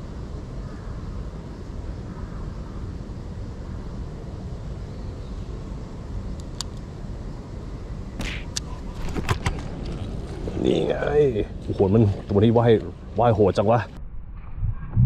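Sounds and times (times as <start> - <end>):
low background rumble: 0.0 - 15.0
sharp click: 6.4 - 6.8, 8.2 - 9.6.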